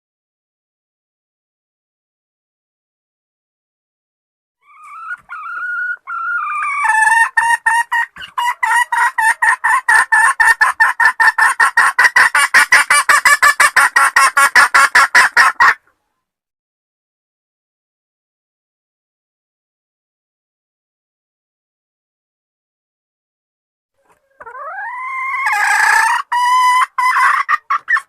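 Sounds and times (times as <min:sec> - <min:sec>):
hen calling and clucking: 0:04.6 - 0:16.2, 0:24.0 - 0:28.0.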